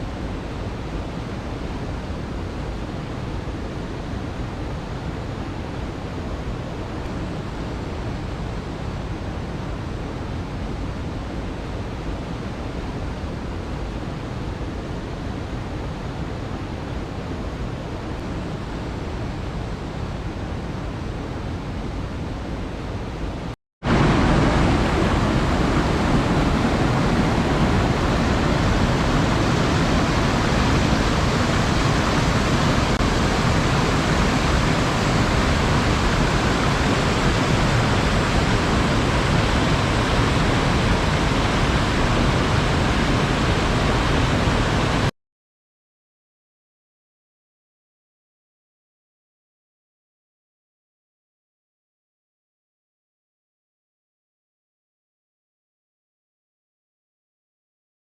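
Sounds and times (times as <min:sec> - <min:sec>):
waterfall rushing: 0:23.9 - 0:45.1.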